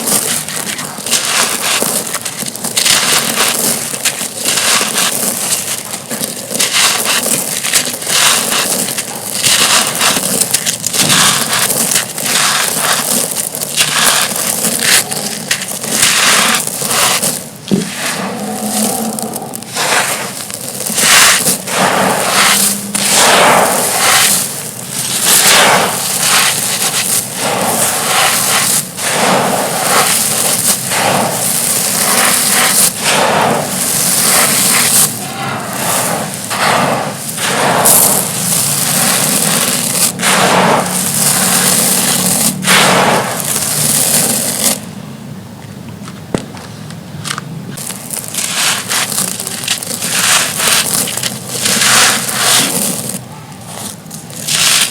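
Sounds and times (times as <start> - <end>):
rustle of crumbs: 0.0 - 44.9, 47.7 - 54.9
stone slabs crunching: 0.0 - 44.9, 47.3 - 54.9.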